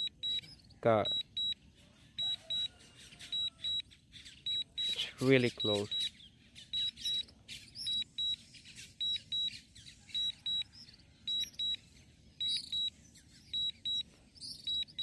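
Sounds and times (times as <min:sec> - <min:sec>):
high-pitched double beeps: 0:00.0 - 0:01.6, 0:02.2 - 0:03.9, 0:04.5 - 0:06.1, 0:06.8 - 0:08.4, 0:09.0 - 0:11.8, 0:12.4 - 0:12.9, 0:13.5 - 0:15.0.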